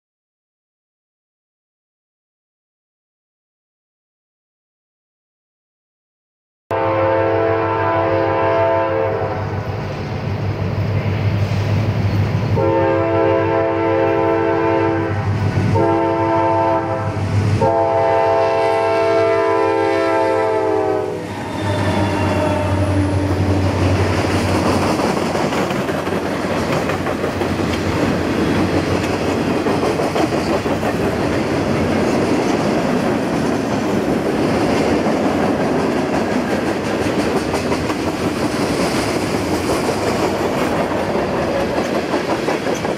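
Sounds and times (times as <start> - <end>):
locomotive air horn: 6.7 - 9.6, 12.6 - 23.7
freight cars rumbling: 21.1 - 42.9
wheels clickety-clack: 23.4 - 42.9.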